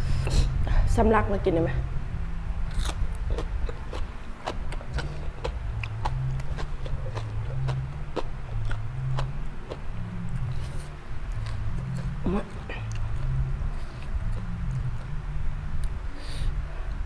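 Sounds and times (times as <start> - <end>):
low hum: 0.0 - 17.0
chewing crunchy raw vegetables: 2.7 - 15.2.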